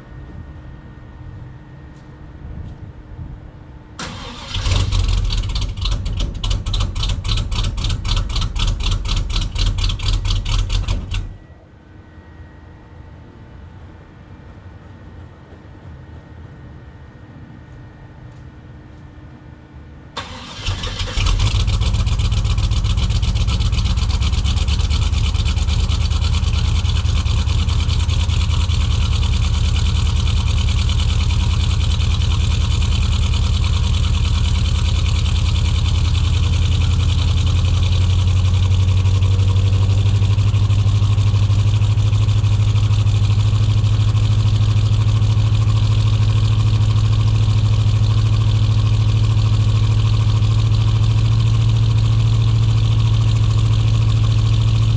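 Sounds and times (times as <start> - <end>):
engine cold start: 4.0 - 11.4, 20.2 - 38.6
engine fast idling: 4.0 - 11.4, 20.2 - 54.9.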